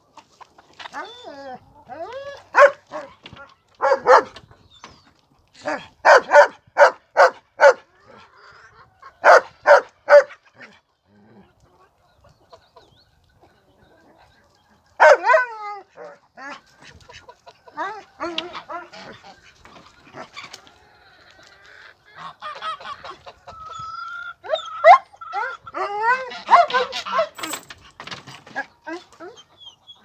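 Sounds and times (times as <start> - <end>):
dog barking: 2.5 - 3.2, 3.8 - 4.4, 5.7 - 7.9, 9.2 - 10.4, 15.0 - 16.2, 24.8 - 27.5.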